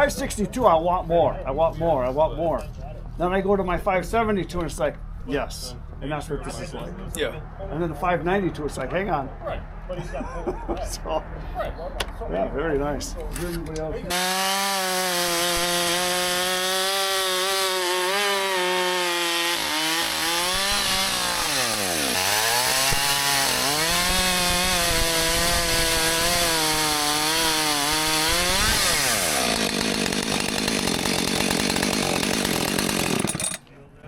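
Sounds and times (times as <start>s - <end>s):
chainsaw cutting wood: 14.1s - 33.6s.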